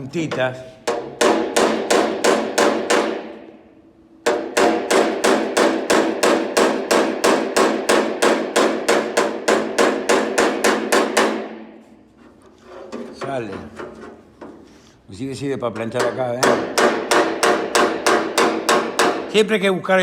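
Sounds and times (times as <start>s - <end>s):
hammer tapping steel panel: 0.2s - 3.4s, 4.2s - 11.6s, 15.7s - 19.4s.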